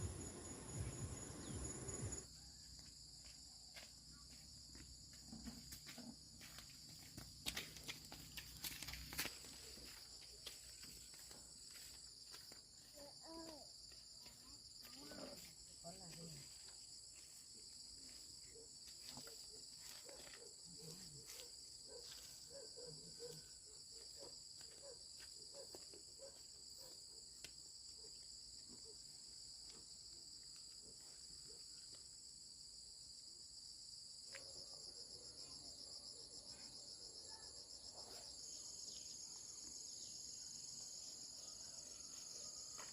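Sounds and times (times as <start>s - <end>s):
insect chorus singing: 0.0s - 2.9s, 33.8s - 42.9s
higher pulsing insect song: 0.0s - 42.9s.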